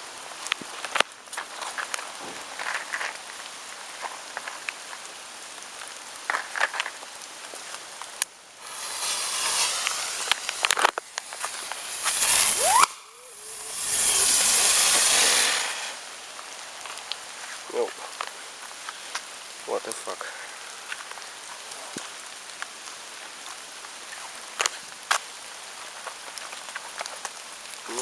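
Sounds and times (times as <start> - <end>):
fireworks crackling and fizzing: 0.0 - 28.0
fireworks hissing bursts: 7.8 - 21.1
firework rising whistle: 8.6 - 16.3.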